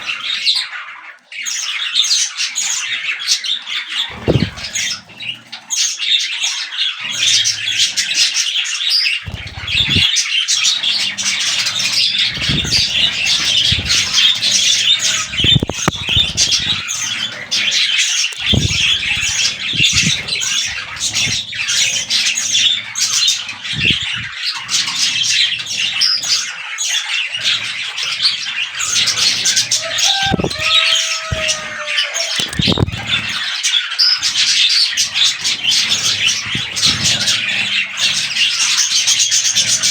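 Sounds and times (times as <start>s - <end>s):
budgerigars chattering: 0.0s - 39.9s
low thumps: 4.1s - 5.0s, 9.3s - 10.1s, 10.9s - 17.7s, 18.4s - 22.8s.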